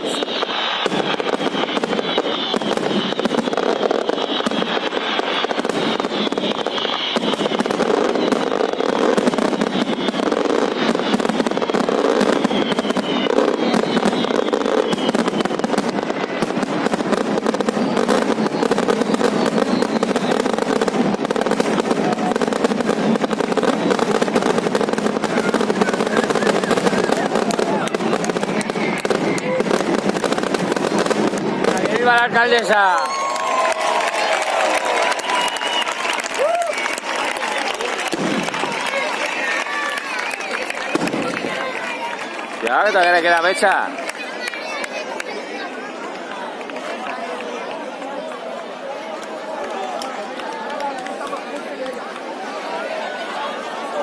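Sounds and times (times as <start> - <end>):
fireworks falling whistles: 0.0 - 44.2
fireworks crackling and banging: 0.0 - 54.0.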